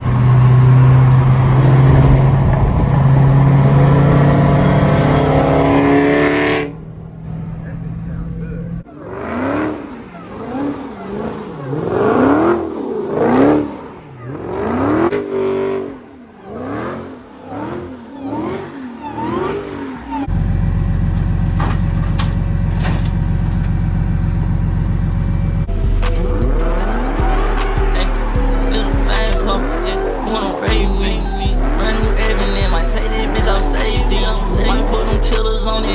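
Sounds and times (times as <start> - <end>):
car engine revving hard: 0.0 - 21.1, 24.8 - 35.9
steady bass-heavy sound: 24.0 - 35.9.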